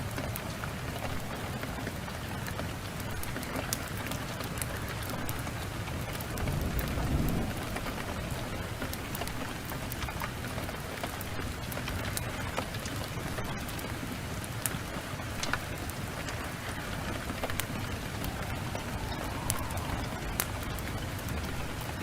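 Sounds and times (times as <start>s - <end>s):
heavy rain downpour: 0.0s - 22.0s
wood fire crackling: 0.0s - 22.0s
thunder rolling: 6.3s - 9.3s, 16.2s - 22.0s.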